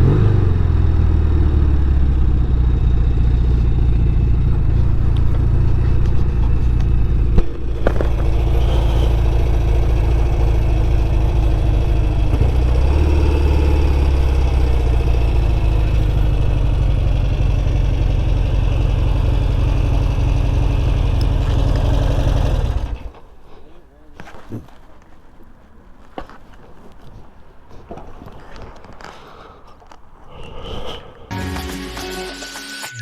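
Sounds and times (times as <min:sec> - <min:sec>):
motorcycle engine running: 0:00.0 - 0:23.2.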